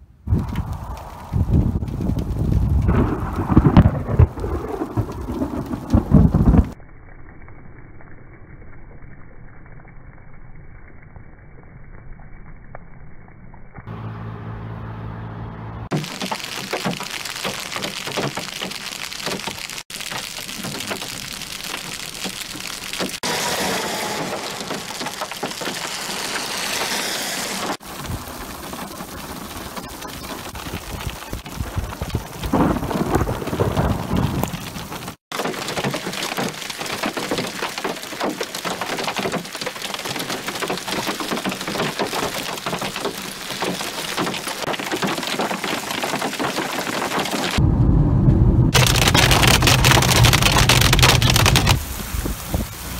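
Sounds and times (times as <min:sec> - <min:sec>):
hail and rain pelting pavement: 0:00.3 - 0:06.8, 0:15.9 - 0:47.6, 0:48.8 - 0:52.9
low rumble: 0:47.6 - 0:52.8.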